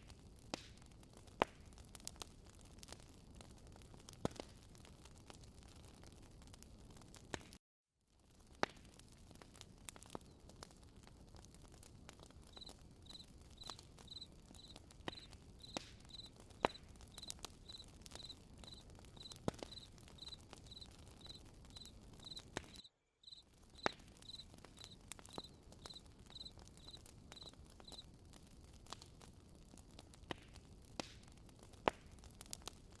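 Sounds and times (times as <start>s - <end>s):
campfire crackling: 0.0s - 7.6s, 8.2s - 33.0s
cricket chirping faintly: 12.5s - 14.8s, 15.6s - 28.0s.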